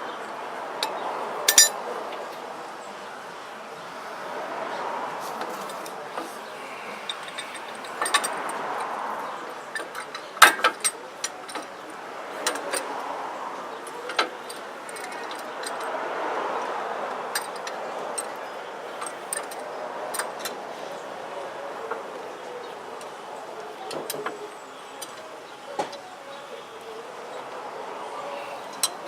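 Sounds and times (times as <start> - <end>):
metallic clinks of hand tools: 1.5 - 1.7.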